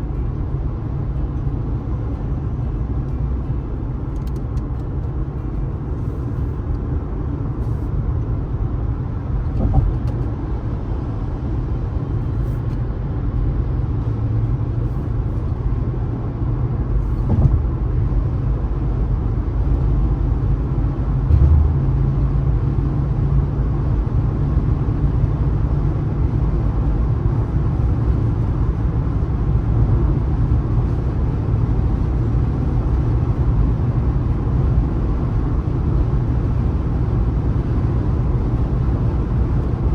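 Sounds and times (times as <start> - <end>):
car driving at highway speed: 0.0 - 39.9
short thumps: 9.6 - 10.2, 17.2 - 17.8, 21.3 - 22.1.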